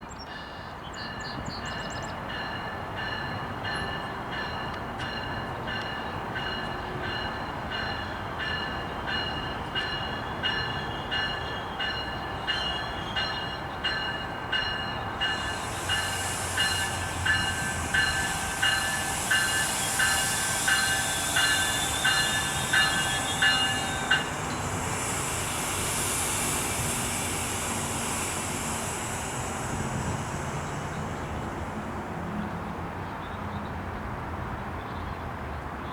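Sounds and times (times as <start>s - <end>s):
locomotive bell ringing: 2.3s - 25.3s
train hissing: 3.7s - 33.1s.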